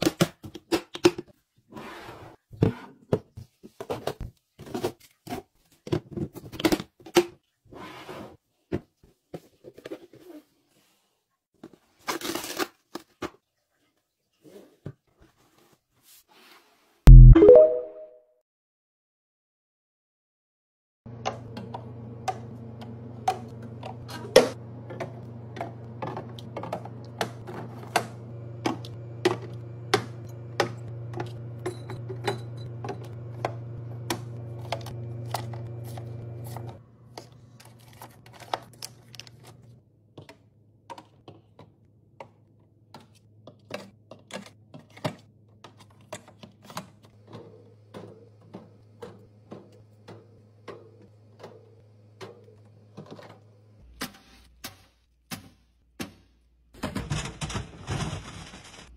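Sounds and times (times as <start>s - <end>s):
kitchen containers clicking and clacking: 0.0s - 1.4s, 23.2s - 35.6s, 40.2s - 53.4s, 56.7s - 58.9s.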